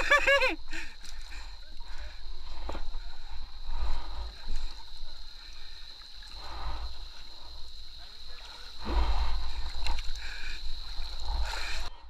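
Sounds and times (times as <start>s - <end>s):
river water splashing: 0.0s - 11.9s
low buffeting rumble: 6.4s - 12.0s.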